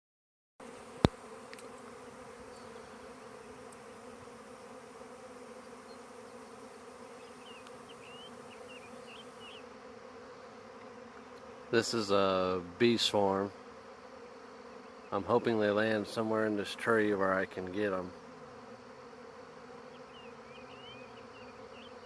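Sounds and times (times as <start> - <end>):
bees buzzing: 0.6 - 22.0.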